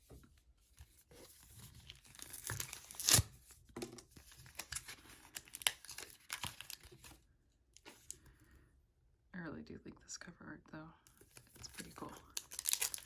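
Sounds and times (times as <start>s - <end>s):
foil pack ripping: 2.0s - 3.3s, 12.4s - 13.0s
foil wrapper crinkling: 4.5s - 7.0s, 11.4s - 13.0s.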